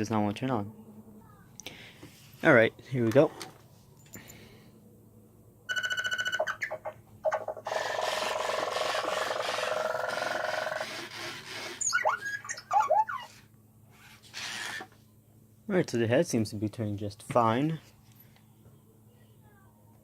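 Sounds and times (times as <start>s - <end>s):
electronic beeps: 5.7s - 7.4s
toy robot whirring: 7.4s - 15.0s.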